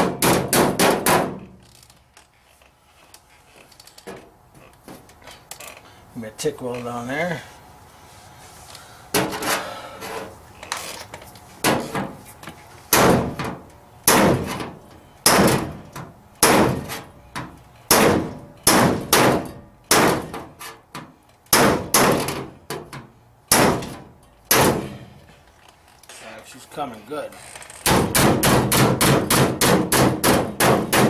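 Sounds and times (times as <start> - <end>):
hammer striking metal panel: 0.0 - 1.4, 12.9 - 14.7, 15.3 - 15.8, 16.4 - 17.0, 17.9 - 20.5, 21.5 - 25.1, 27.9 - 31.0.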